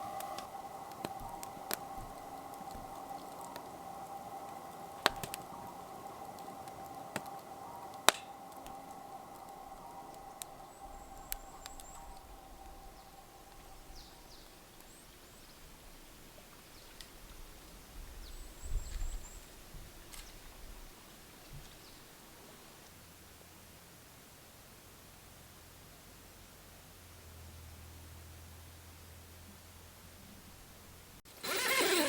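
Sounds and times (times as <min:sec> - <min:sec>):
steady hum: 0:00.0 - 0:13.9
campfire crackling and popping: 0:00.0 - 0:15.0
birdsong chirps: 0:00.0 - 0:22.2.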